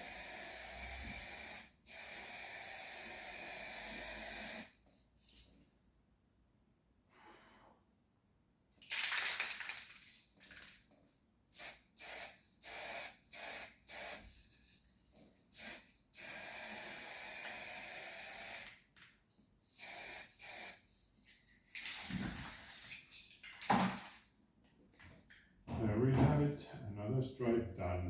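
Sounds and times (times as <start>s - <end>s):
paint spraying hiss: 0.0s - 4.7s, 11.6s - 14.5s, 15.5s - 18.8s, 19.7s - 20.9s, 21.9s - 23.1s.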